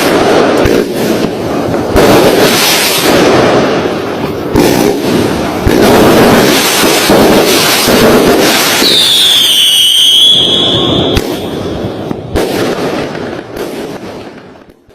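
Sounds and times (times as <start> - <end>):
fireworks crackling and banging: 0.0 - 14.9
firework whistle: 6.4 - 12.3.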